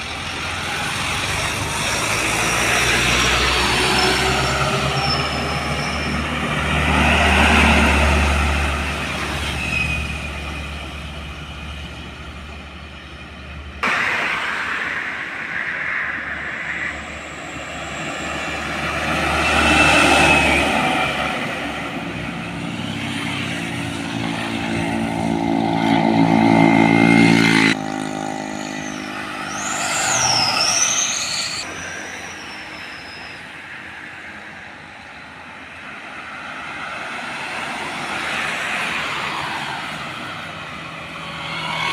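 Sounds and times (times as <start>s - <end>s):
diesel trucks passing: 0.0s - 41.9s.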